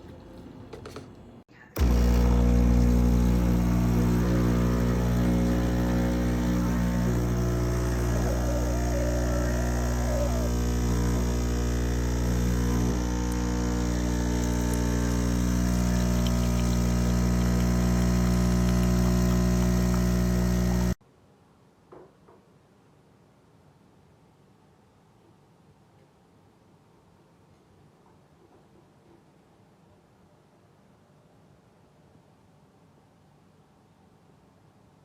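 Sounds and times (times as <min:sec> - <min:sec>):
electrical hum with buzz: 0:01.8 - 0:21.0.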